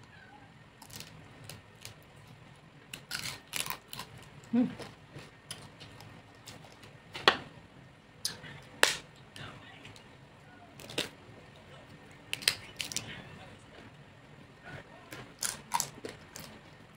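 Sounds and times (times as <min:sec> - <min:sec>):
chewing and biting crispy skin: 0:00.8 - 0:06.9, 0:15.1 - 0:16.6.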